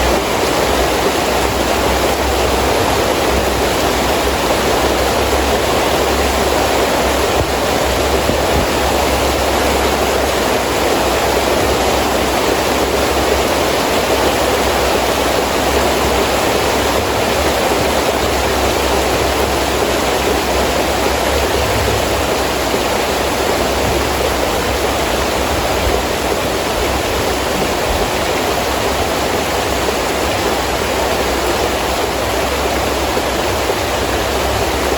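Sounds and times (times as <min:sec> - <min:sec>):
heavy rain with wind: 0:00.0 - 0:34.9
low rumble: 0:21.0 - 0:29.3.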